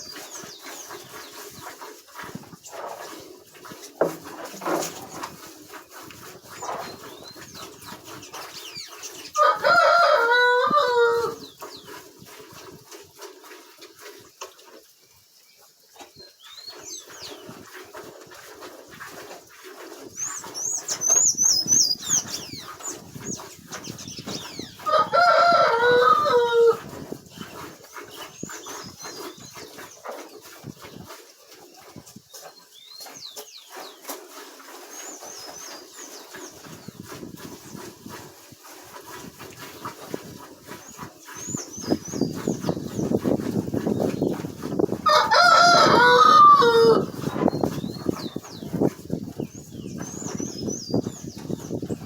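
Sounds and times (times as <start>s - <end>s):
rooster crowing: 9.4s - 11.4s, 24.8s - 26.8s, 45.0s - 47.2s.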